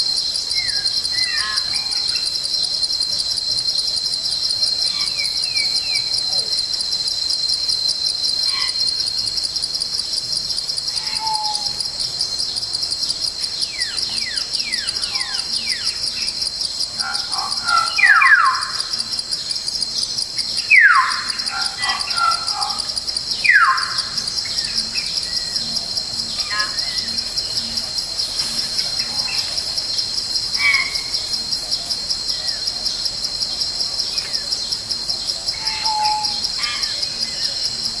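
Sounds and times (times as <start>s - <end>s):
forest insects chorus: 0.0s - 38.0s
birds calling: 17.0s - 18.9s.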